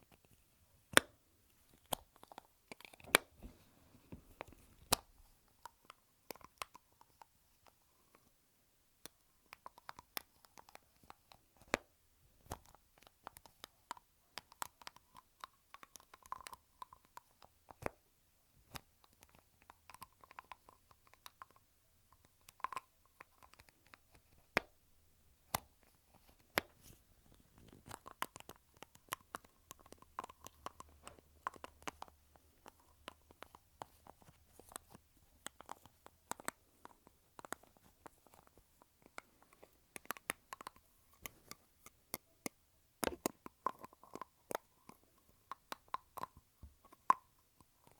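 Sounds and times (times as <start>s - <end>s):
lipstick cases clicking: 43.0s - 46.4s.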